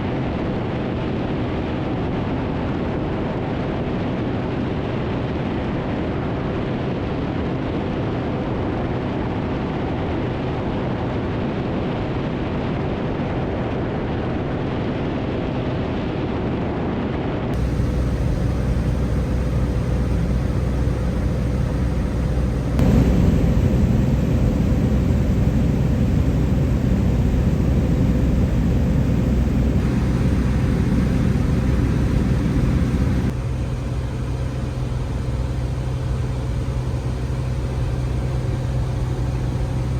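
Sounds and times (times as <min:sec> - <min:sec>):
airplane engine and propeller droning: 0:17.6 - 0:39.9.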